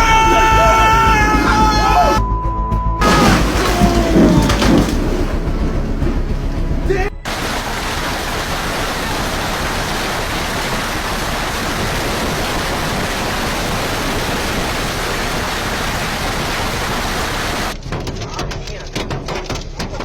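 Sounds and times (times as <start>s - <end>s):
steady rushing noise: 3.0s - 17.8s.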